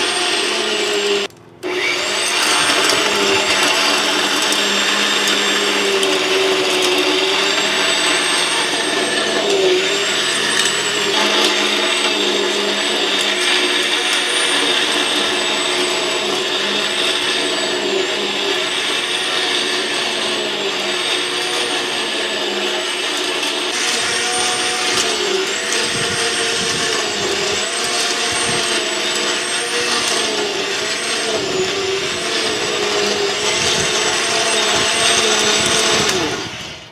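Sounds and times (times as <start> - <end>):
electric cultivator motor whine: 0.0 - 36.9.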